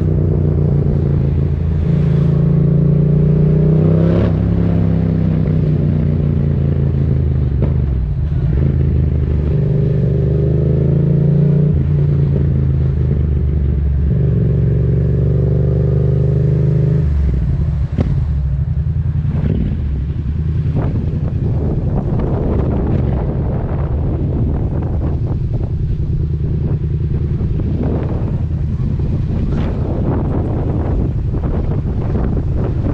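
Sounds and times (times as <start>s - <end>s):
motorcycle engine running: 17.2s - 32.9s.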